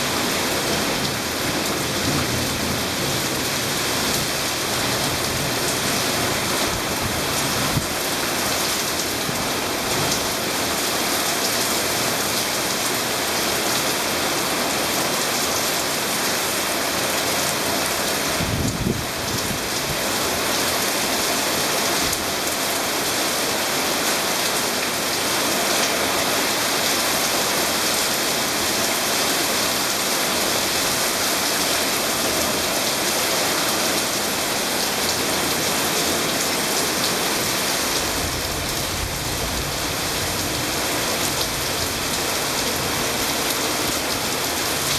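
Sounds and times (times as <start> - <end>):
torrential rain on hard surfaces: 0.0 - 44.9.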